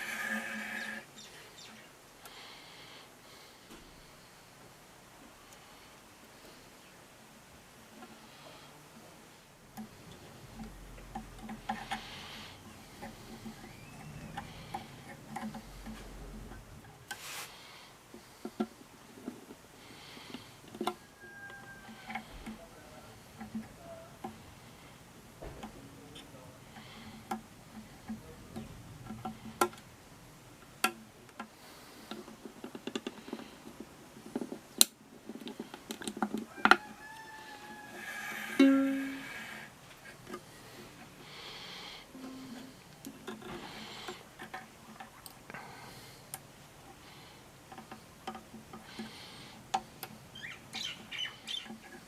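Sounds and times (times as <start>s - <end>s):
handling clicks and taps: 30.7s - 36.9s
ukulele strings plucked: 38.6s - 39.2s.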